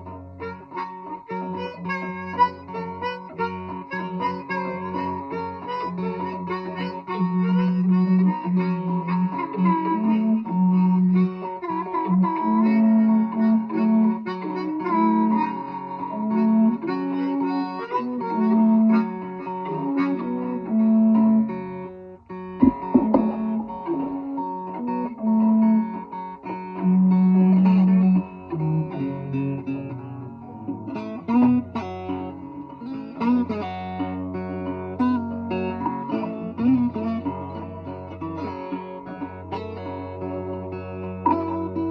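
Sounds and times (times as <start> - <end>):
blues guitar: 0.0 - 41.9
low wind instrument long notes: 0.8 - 28.3.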